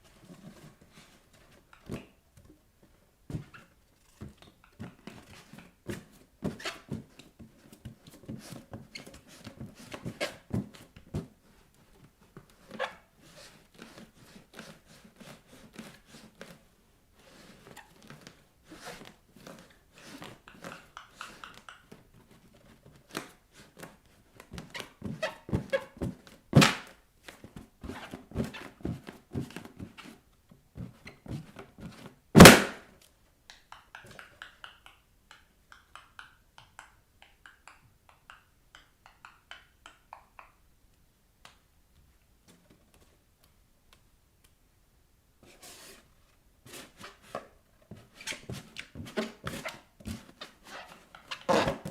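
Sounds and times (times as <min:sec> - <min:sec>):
feet tapping on balloons: 0:03.2 - 0:12.9, 0:17.7 - 0:32.8, 0:47.8 - 0:51.9
balloons bursting: 0:32.4 - 0:32.9.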